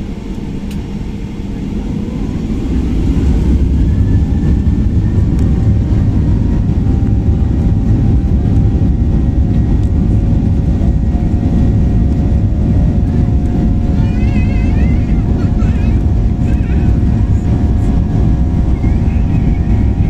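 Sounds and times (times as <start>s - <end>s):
airliner engines rumbling in cabin: 0.0s - 20.0s
faint steady whine: 0.0s - 20.0s.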